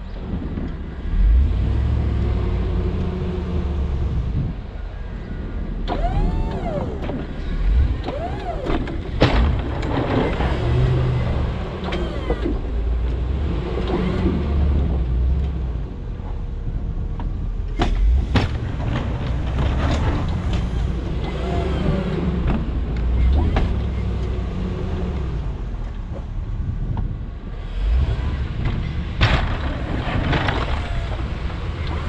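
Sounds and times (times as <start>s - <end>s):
truck engine running: 5.9s - 13.4s.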